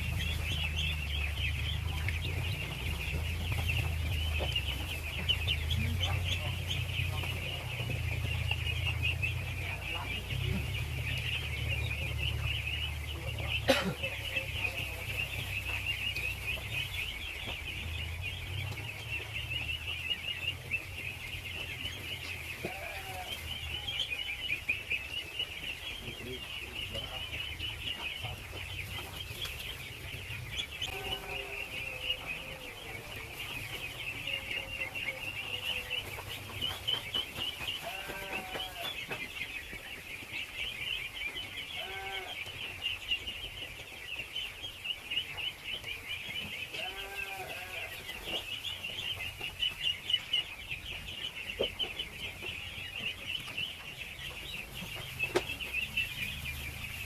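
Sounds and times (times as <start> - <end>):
ducklings peeping: 0.0 - 57.0.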